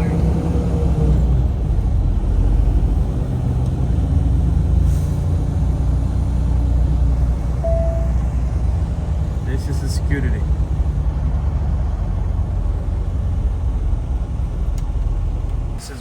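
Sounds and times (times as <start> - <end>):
truck engine rumble in cab: 0.0 - 16.0
brief beep: 7.6 - 8.3.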